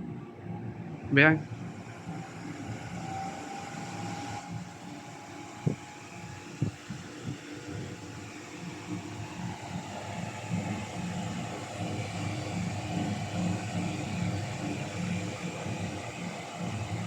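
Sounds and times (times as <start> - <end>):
small fan whirring: 0.0 - 17.0.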